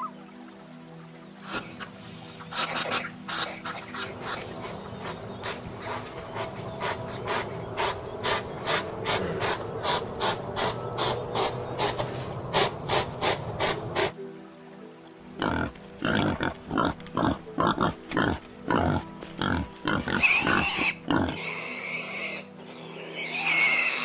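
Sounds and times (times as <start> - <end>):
background music: 0.0 - 24.0
animal making harsh breathy strokes: 5.1 - 14.1.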